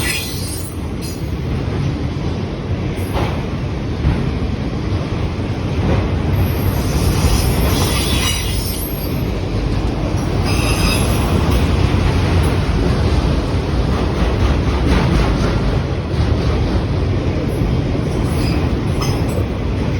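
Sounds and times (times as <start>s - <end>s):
train wheels rumbling on rail: 0.0s - 19.9s
high-pitched wheel squeal: 6.9s - 9.2s, 10.4s - 11.3s.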